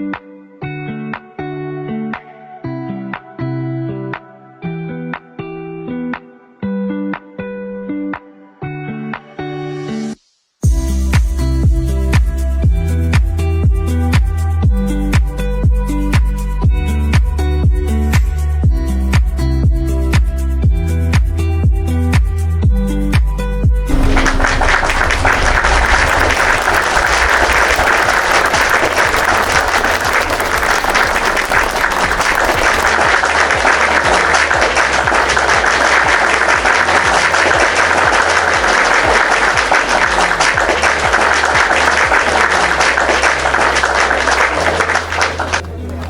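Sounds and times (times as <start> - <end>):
background music with bass: 10.7 - 46.0
crowd applauding: 23.9 - 46.0.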